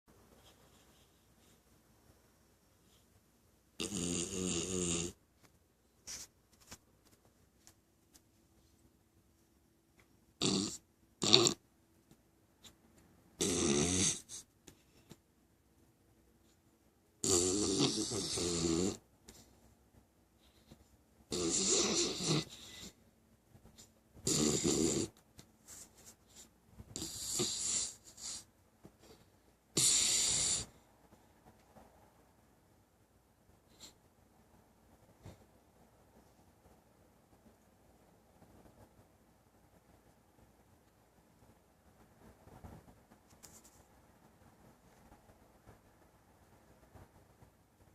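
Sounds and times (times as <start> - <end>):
puppy snoring: 3.8 - 5.2, 10.4 - 11.6, 13.4 - 14.5, 17.2 - 19.0, 21.3 - 23.0, 24.2 - 25.2, 26.9 - 28.5, 29.7 - 30.9.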